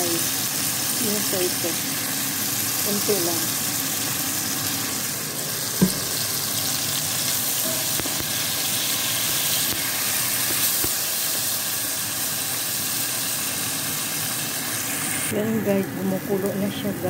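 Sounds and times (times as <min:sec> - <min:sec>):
chicken sizzling in hot oil: 0:00.0 - 0:17.0
sharp knock: 0:05.8 - 0:06.2.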